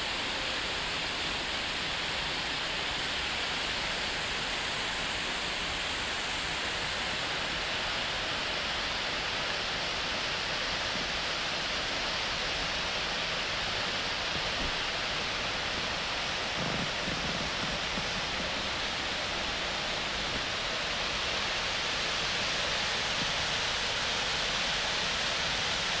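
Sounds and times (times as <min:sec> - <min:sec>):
river rushing over rocks: 0:00.0 - 0:26.0.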